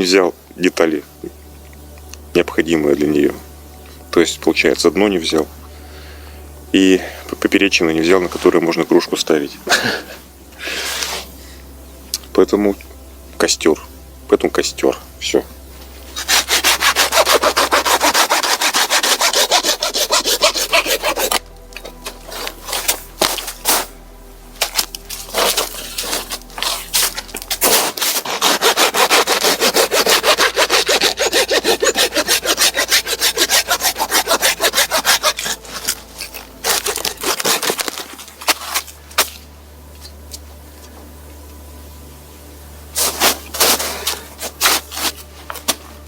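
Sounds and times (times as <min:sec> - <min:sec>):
hand saw cutting wood: 0:16.2 - 0:23.9, 0:24.6 - 0:39.4, 0:43.0 - 0:45.8.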